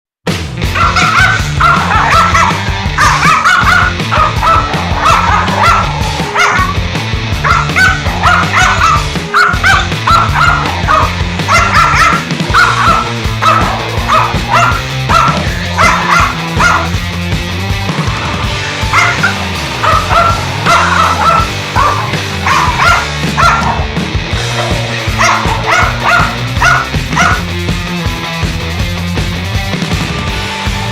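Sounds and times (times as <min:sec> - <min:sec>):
background music: 0:00.3 - 0:30.9
dog yapping: 0:00.8 - 0:06.8, 0:07.4 - 0:17.0, 0:18.9 - 0:23.9, 0:24.5 - 0:27.5.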